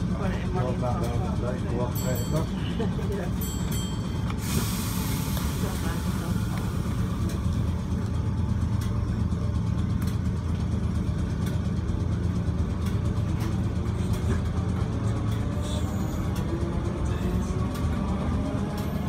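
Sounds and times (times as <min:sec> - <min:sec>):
electric train hum and rumble: 0:00.0 - 0:19.0
clicks from the track: 0:12.7 - 0:15.6.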